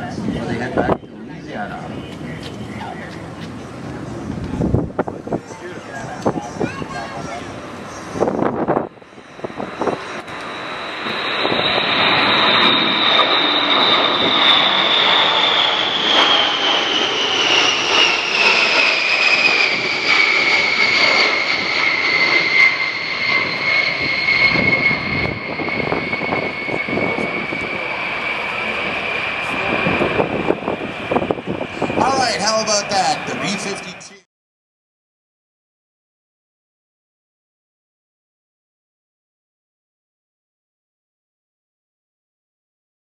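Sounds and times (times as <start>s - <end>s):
jet bomber flying past: 0.0s - 34.3s
high engine whine falling in pitch: 8.0s - 34.2s.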